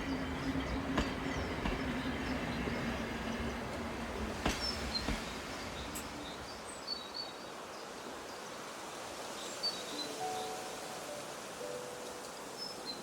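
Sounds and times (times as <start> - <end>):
steady hiss: 2.8 - 13.0.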